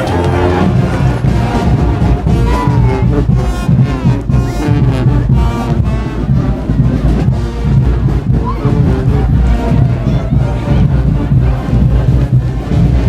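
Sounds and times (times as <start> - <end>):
brass band playing loudly: 0.0 - 13.0
steady drum beat: 0.0 - 13.0.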